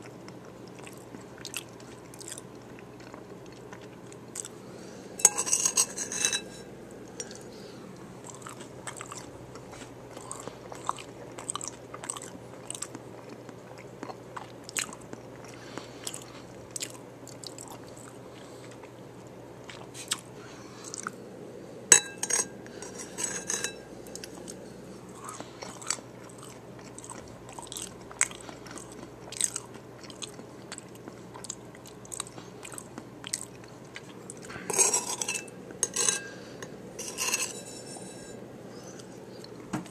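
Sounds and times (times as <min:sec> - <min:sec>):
close chewing crunches: 0:00.0 - 0:04.6, 0:08.2 - 0:19.0, 0:24.1 - 0:35.1.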